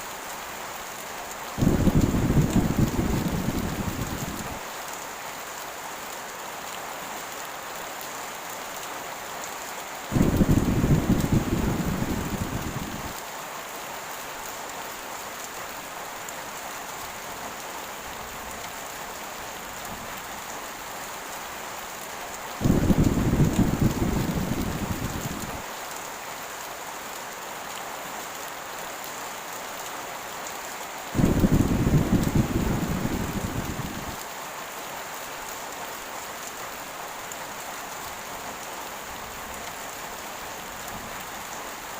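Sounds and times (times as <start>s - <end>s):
heavy rain: 0.0s - 41.9s
low rolls of thunder: 1.6s - 4.6s, 10.1s - 13.2s, 22.6s - 25.6s, 31.2s - 34.2s.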